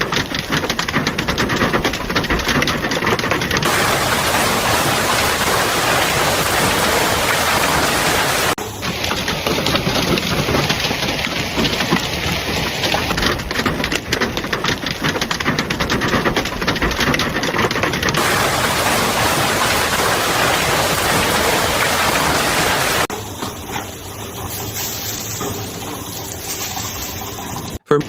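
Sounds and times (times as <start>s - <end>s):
rain patter on hard surface: 0.0s - 27.8s
heavy rain hissing: 3.6s - 13.0s, 18.2s - 27.8s.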